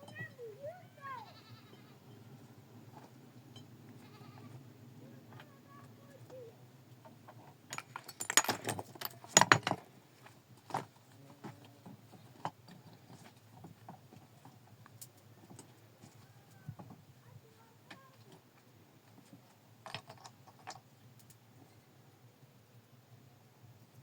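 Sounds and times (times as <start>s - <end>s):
hard objects knocking together: 7.7s - 9.8s.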